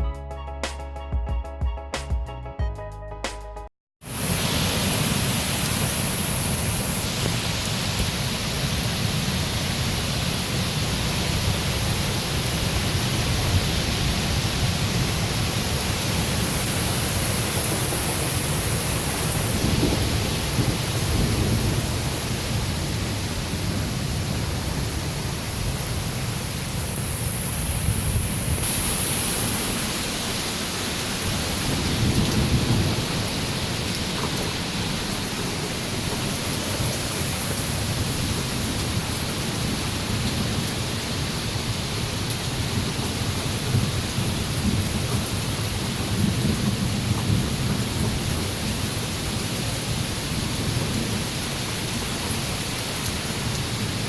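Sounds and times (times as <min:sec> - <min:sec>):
heavy rain: 0:04.0 - 0:54.0
low rumbling thunder: 0:19.3 - 0:24.8, 0:31.4 - 0:33.6.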